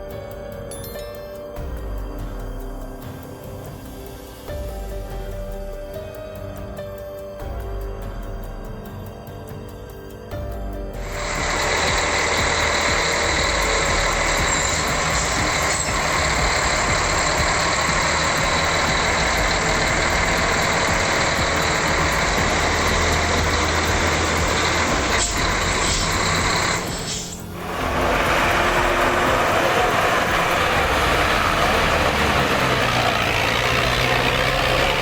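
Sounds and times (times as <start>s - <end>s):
diesel tractor engine running: 11.0s - 35.0s.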